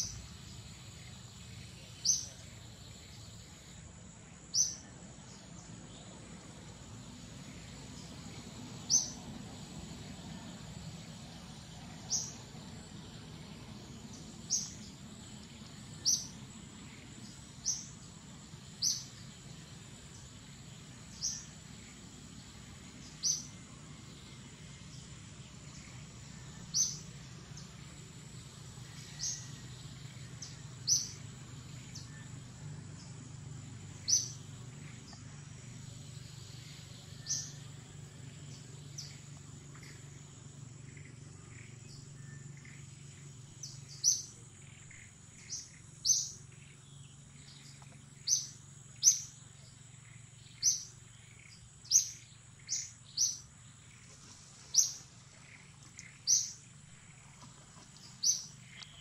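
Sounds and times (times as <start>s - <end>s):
bird chirping: 0.0s - 33.2s, 33.8s - 59.0s.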